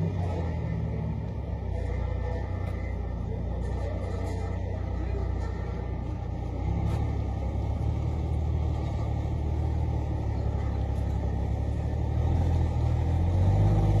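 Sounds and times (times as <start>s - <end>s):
truck diesel engine droning: 0.0s - 14.0s.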